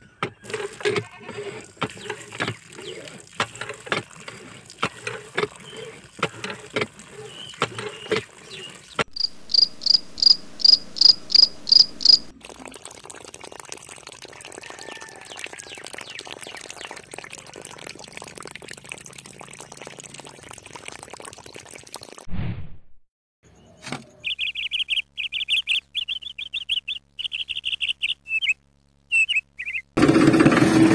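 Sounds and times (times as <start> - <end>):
water trickling onto sand: 1.5 - 9.0
cricket chirping: 9.1 - 12.3.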